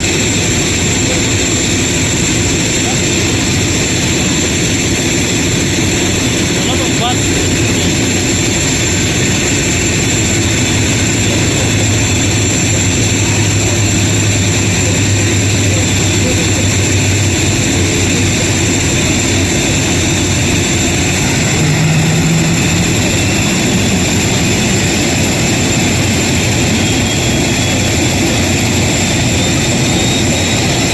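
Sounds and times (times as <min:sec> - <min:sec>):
faint rising whine: 0:00.0 - 0:30.9
jet engines running: 0:00.0 - 0:30.9.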